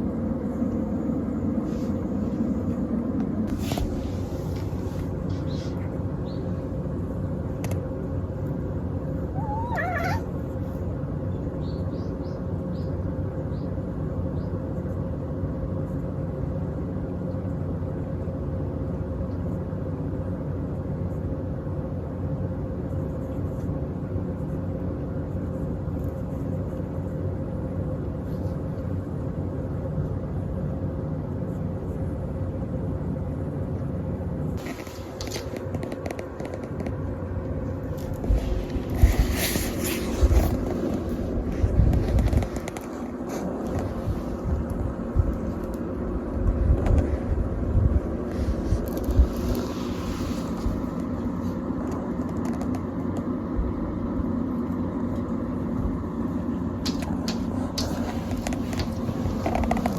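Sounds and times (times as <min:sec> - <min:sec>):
low mechanical hum: 0:00.0 - 0:59.9
cat squeaky call: 0:09.3 - 0:10.4.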